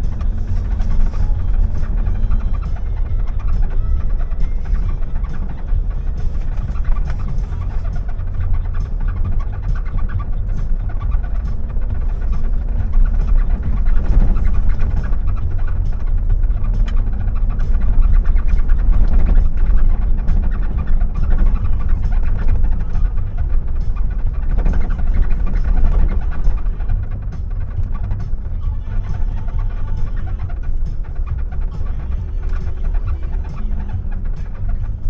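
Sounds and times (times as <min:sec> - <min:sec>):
car engine and tyres rumbling: 0:00.0 - 0:35.0.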